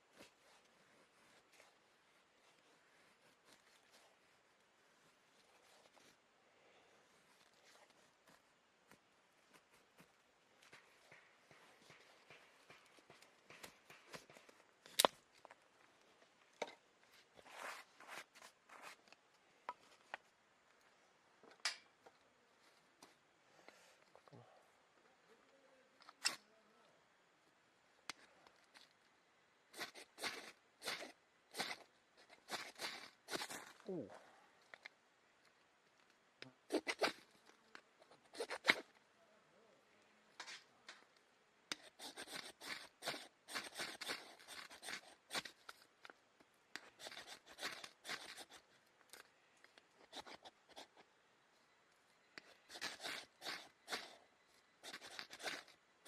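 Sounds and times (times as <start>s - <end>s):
rustling and scraping handling noise: 0.0s - 6.3s, 7.0s - 24.4s, 28.1s - 39.0s, 40.3s - 56.0s.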